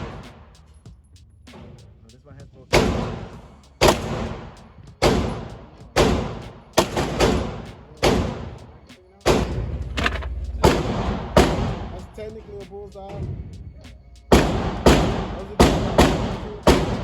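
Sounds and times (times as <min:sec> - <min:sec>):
gunshots with echo: 0:00.0 - 0:00.5, 0:02.7 - 0:12.3, 0:14.3 - 0:17.0.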